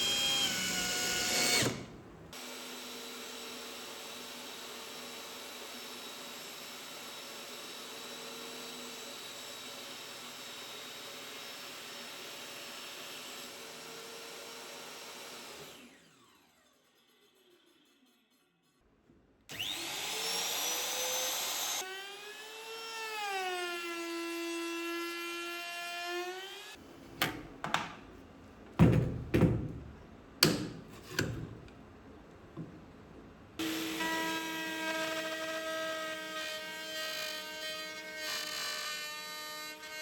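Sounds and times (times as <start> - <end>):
power tool motor whining: 19.5 - 21.8.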